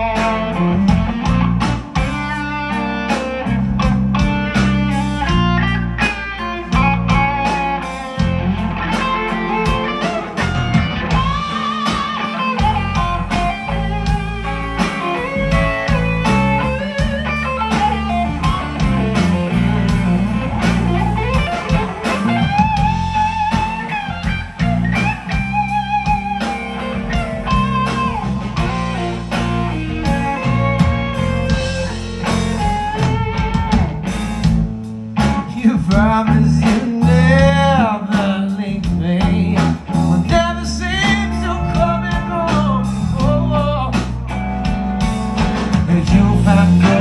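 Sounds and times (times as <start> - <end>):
electric guitar solo: 0.0 - 34.3
bass line: 0.0 - 47.0
drum beat: 0.0 - 47.0.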